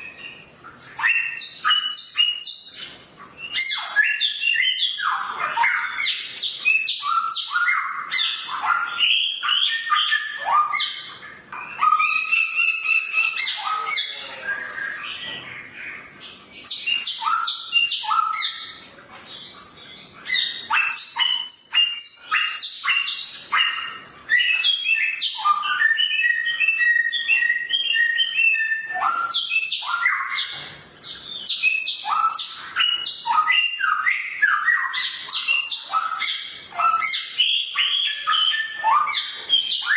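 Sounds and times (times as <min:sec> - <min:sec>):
songbird chattering: 0:00.0 - 0:18.8.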